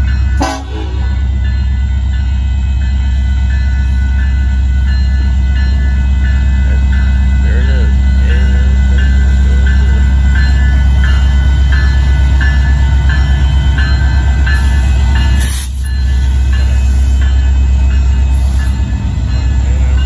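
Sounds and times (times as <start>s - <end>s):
crossing warning bell ringing: 0.0s - 20.0s
diesel locomotive engine rumble: 0.0s - 20.0s.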